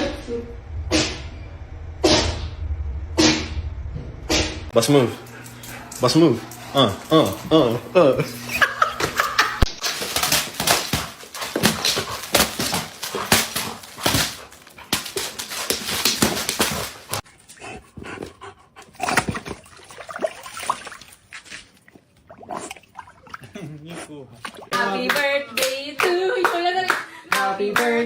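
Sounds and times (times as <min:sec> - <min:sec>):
scattered dog noises: 0:04.3 - 0:21.6.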